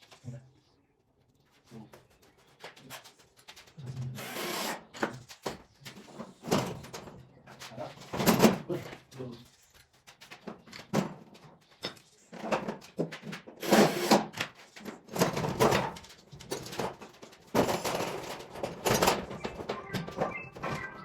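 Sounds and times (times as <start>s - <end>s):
handling knocks and clattering: 5.0s - 13.6s, 14.2s - 21.0s.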